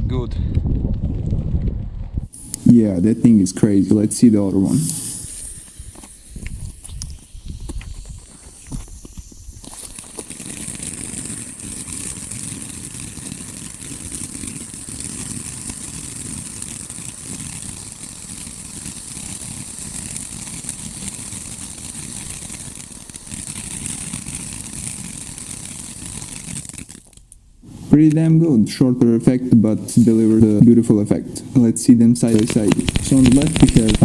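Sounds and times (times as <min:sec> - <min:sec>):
firework fountain hissing: 0:02.3 - 0:34.0.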